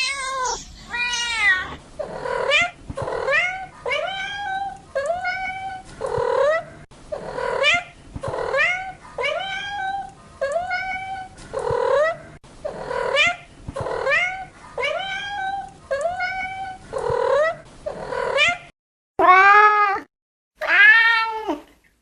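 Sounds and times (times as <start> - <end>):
cat meowing: 0.0 - 1.8, 19.2 - 21.6.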